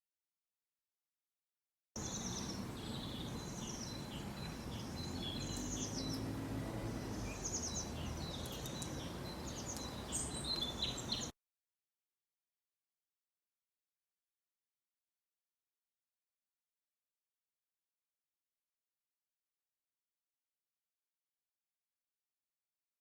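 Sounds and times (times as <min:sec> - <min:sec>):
small birds chirping: 0:02.0 - 0:11.4.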